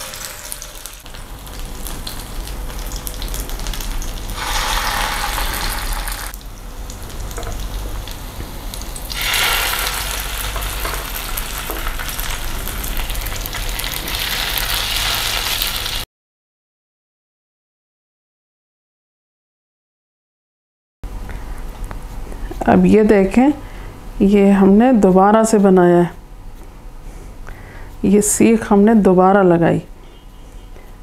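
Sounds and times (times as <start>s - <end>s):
kebab sizzling in hot oil: 0.0s - 16.0s.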